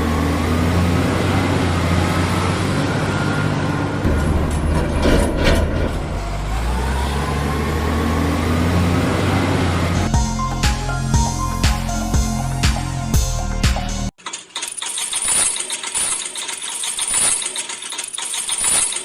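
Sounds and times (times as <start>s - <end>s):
truck engine running: 0.0s - 14.2s
music: 10.1s - 14.1s.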